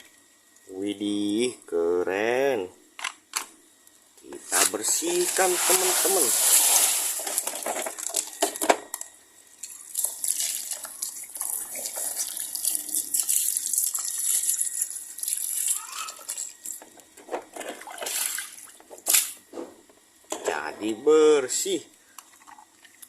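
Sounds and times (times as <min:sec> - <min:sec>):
water splashing and trickling: 0:05.0 - 0:07.5, 0:09.7 - 0:16.6.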